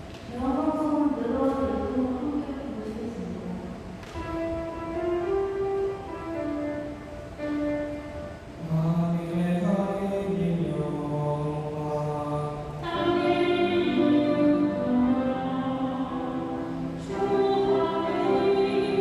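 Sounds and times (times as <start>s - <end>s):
choir singing sustained notes: 4.4s - 19.0s.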